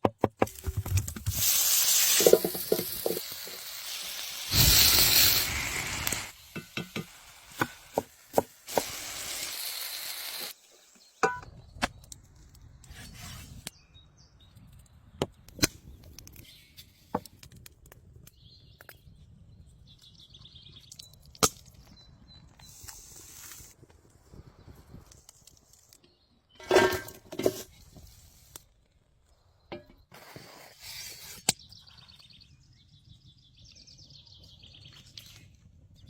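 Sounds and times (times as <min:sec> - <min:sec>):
short hiss: 0:01.3 - 0:06.4.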